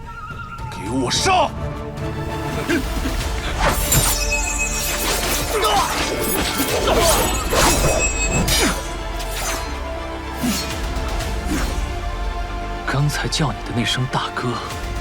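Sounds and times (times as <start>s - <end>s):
dramatic music score: 0.0s - 15.0s
sword blades clashing: 3.6s - 9.8s.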